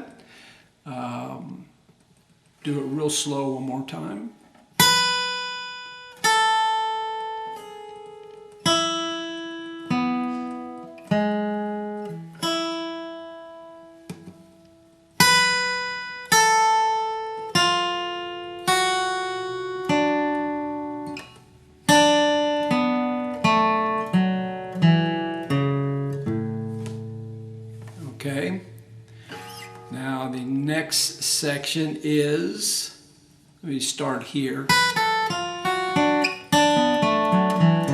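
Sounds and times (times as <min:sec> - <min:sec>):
acoustic guitar bluegrass riff: 0:04.8 - 0:32.8, 0:34.0 - 0:37.9.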